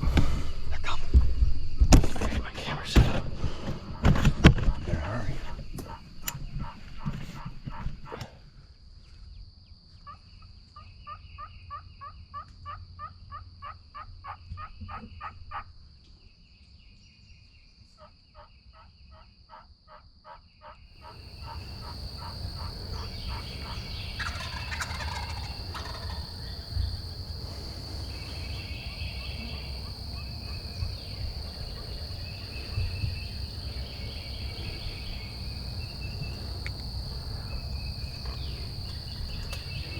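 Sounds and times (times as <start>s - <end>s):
turkeys yelping: 3.6s - 8.2s, 21.0s - 39.9s
high insect drone: 21.0s - 39.9s.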